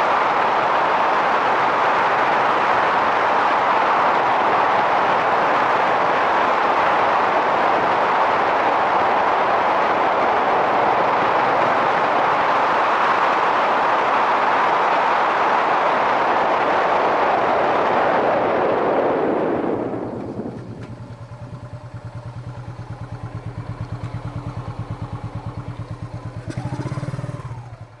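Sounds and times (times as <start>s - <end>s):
wind rushing over microphone: 0.0s - 28.0s
motorcycle engine revving: 19.7s - 28.0s
motorcycle engine idling: 19.9s - 28.0s.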